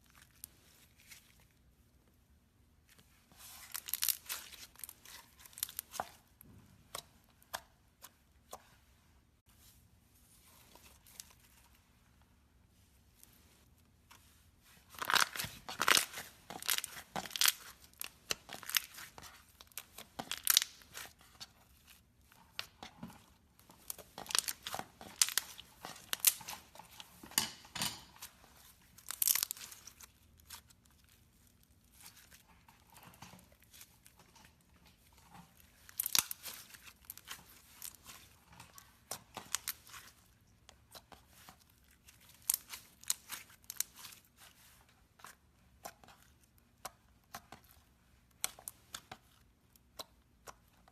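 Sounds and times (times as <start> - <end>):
slime crackling and popping: 3.5 - 6.2, 14.9 - 23.0, 23.6 - 27.1, 28.9 - 34.2, 35.0 - 50.9.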